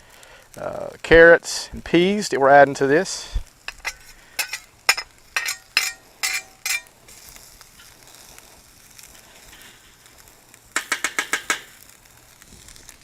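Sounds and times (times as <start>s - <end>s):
food sizzling on a griddle: 0.0s - 13.0s
metal utensil clacking on griddle: 3.7s - 7.2s, 10.8s - 11.8s.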